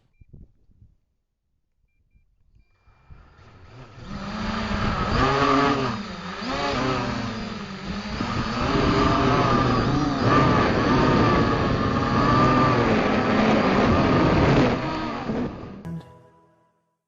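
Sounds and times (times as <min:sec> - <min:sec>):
engine revving: 0:03.3 - 0:15.7.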